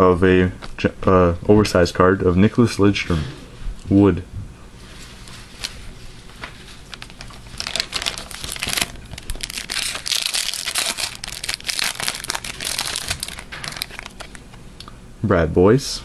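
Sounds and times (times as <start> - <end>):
wrapper crinkling: 5.2 - 14.6.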